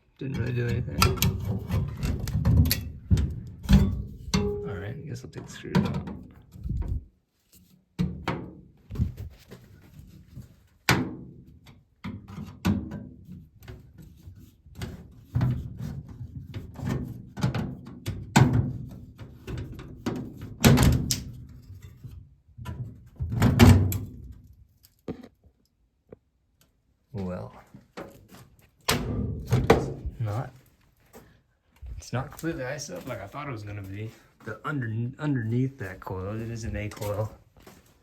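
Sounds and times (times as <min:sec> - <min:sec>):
metal panel rattling and scraping: 0:00.4 - 0:04.7.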